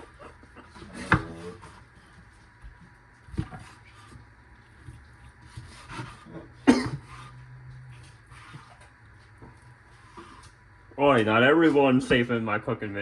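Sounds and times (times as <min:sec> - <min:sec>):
sharp cough-like burst: 0:06.6 - 0:07.2.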